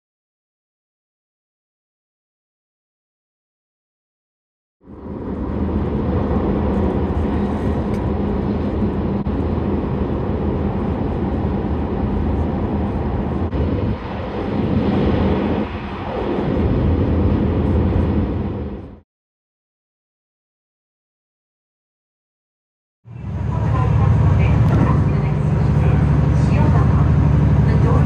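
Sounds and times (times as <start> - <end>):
train rumbling and rattling: 4.9 - 19.0, 23.1 - 28.0.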